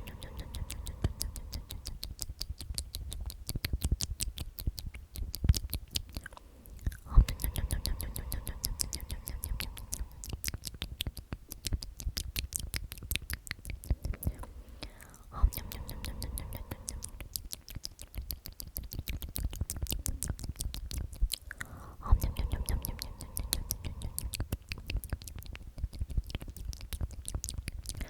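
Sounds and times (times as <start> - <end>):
person whispering omnomnom: 0.0 - 3.2, 6.0 - 11.8, 13.7 - 27.2
wet mouth clicks and smacks: 0.0 - 28.0.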